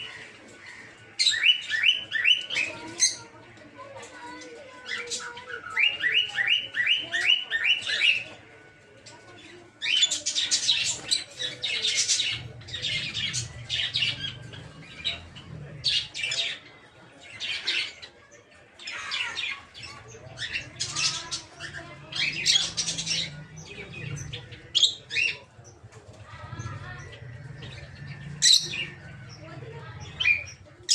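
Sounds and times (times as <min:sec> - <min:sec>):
lovebirds chirping: 0:09.5 - 0:18.2, 0:18.8 - 0:30.9.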